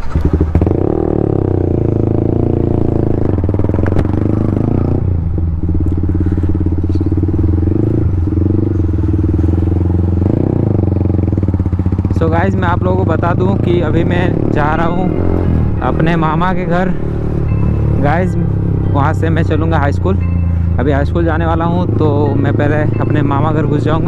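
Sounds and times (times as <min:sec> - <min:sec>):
motorcycle engine riding off: 0:00.0 - 0:24.0.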